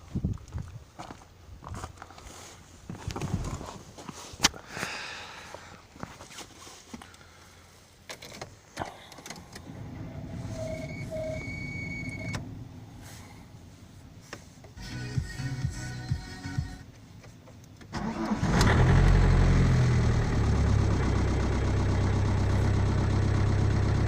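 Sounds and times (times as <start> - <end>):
thin high tone: 9.8 - 12.4
short beeps: 10.2 - 12.4.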